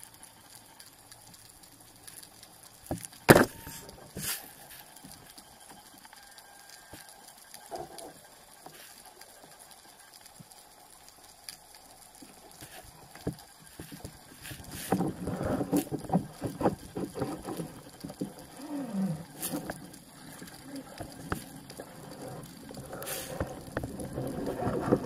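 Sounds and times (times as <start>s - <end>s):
bubbling: 11.6s - 25.0s
water splashing and gurgling: 12.2s - 25.0s.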